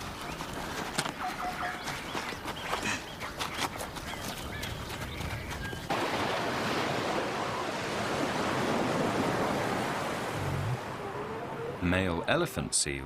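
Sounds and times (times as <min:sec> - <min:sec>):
waves washing on a beach: 0:05.9 - 0:11.8.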